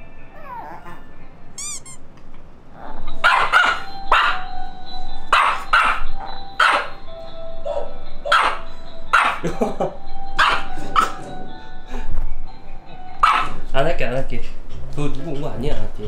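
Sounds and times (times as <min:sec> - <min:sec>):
background music: 0:00.0 - 0:01.6, 0:02.8 - 0:16.0
small dog barking: 0:03.2 - 0:04.5, 0:05.3 - 0:07.0, 0:07.7 - 0:09.4, 0:10.4 - 0:11.2, 0:13.2 - 0:13.6.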